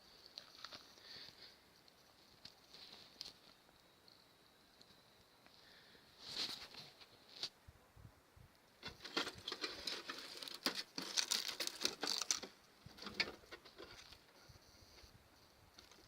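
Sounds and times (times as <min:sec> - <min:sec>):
trash crackling: 0:08.8 - 0:14.1.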